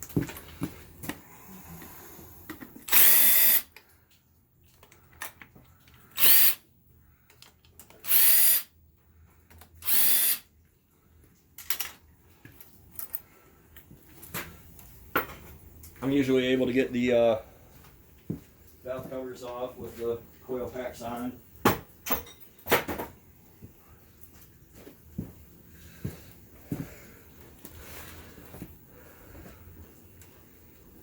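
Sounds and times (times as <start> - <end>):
cordless power tool motor whine: 2.9 - 3.7, 6.2 - 6.6, 8.1 - 8.6, 9.8 - 10.4.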